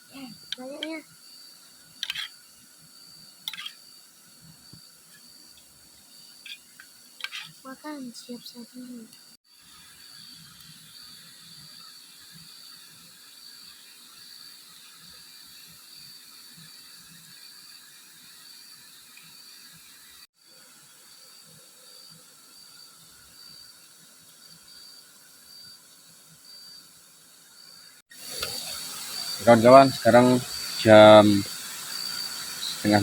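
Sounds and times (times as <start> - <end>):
riverside night ambience hiss: 0.0 - 33.0.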